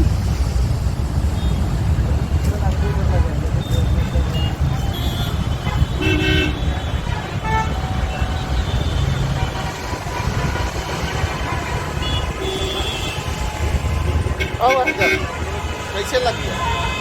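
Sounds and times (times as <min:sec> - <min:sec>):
highway traffic rumbling: 0:00.0 - 0:17.0
vehicle horn toot: 0:03.6 - 0:13.4, 0:14.4 - 0:15.4.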